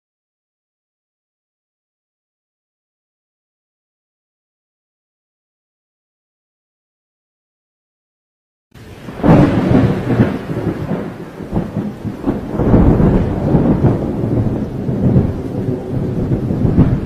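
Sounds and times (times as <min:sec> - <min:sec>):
rolling thunder rumble: 0:08.8 - 0:17.0
thunder crack: 0:08.8 - 0:17.0.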